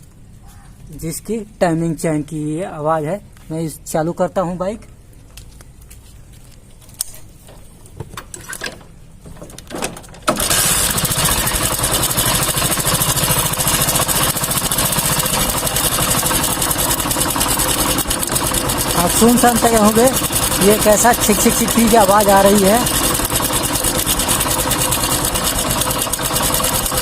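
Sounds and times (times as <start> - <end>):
motorcycle engine idling: 10.4 - 27.0
timing chain chatter: 10.4 - 27.0.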